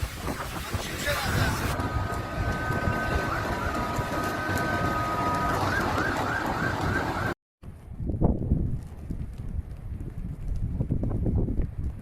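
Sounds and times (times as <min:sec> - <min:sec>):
emergency vehicle siren: 0:01.4 - 0:07.4.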